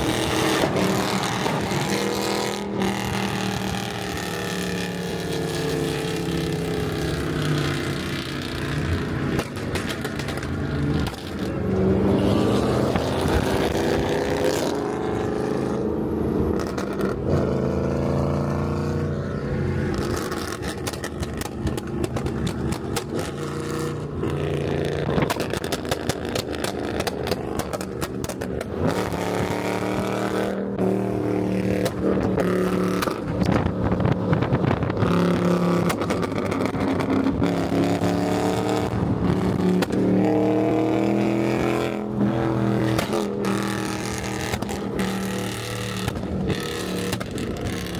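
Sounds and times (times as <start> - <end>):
car engine accelerating through gears: 0.0 - 47.9.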